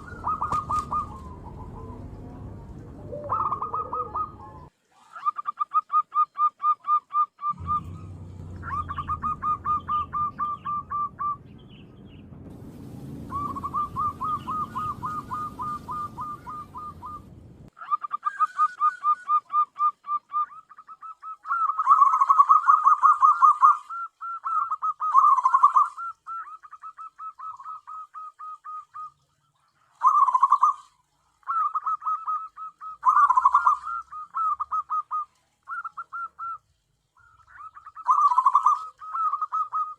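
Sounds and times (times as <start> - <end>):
low rumbling noise: 0.0 - 4.7, 7.5 - 17.7
dove cooing: 0.0 - 11.4, 13.3 - 29.1, 30.0 - 39.9.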